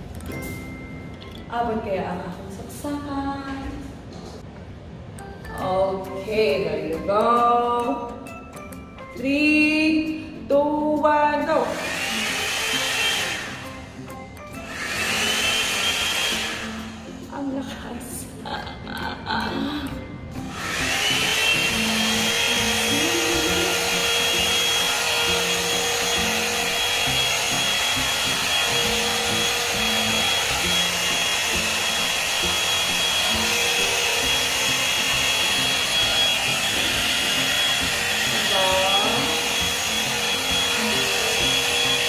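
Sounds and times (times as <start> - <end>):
hair dryer running: 11.5 - 17.3, 20.4 - 42.0.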